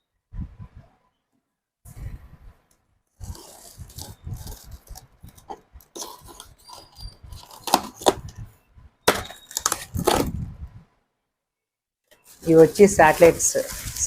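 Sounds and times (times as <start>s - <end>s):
packing material rustling: 3.2s - 8.3s, 9.1s - 10.4s, 12.2s - 14.0s.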